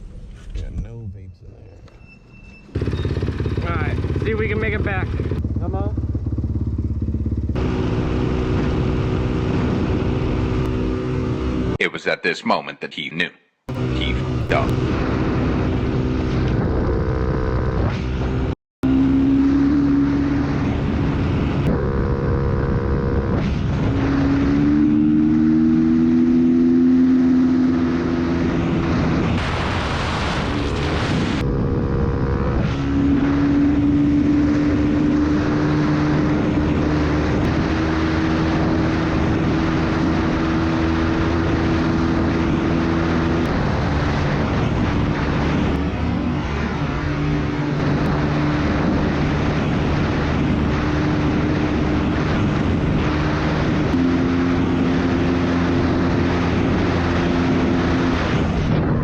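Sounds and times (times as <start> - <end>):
dirt bike engine running: 2.7 - 11.8, 13.7 - 59.0
wind noise: 27.7 - 59.0.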